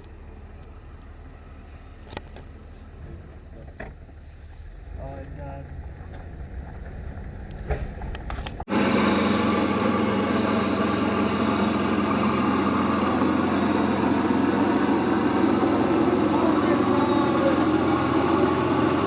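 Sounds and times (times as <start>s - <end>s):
distant engine hum: 0.0s - 19.0s
go-kart engine running: 5.0s - 19.0s.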